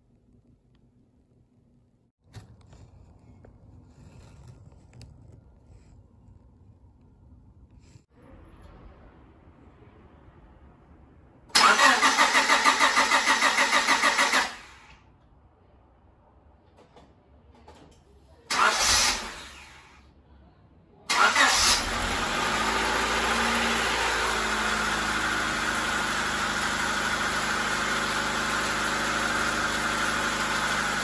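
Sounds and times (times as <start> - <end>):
car engine starting and idling: 8.0 - 15.2, 17.9 - 20.0, 21.1 - 31.0.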